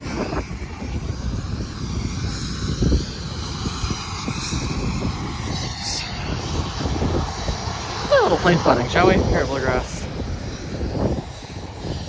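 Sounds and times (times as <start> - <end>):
faint aircraft engines: 0.0 - 12.0
wind buffeting microphone: 0.0 - 12.0.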